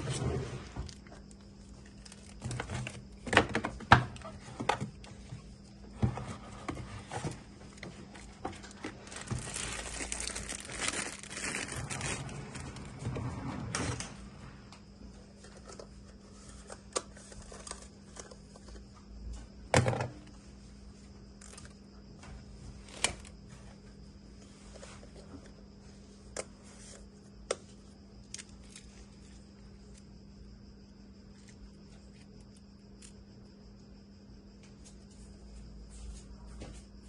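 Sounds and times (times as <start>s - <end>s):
faint electrical hum: 0.0s - 37.0s
packaging crinkling and rustling: 0.8s - 4.9s, 6.7s - 12.9s.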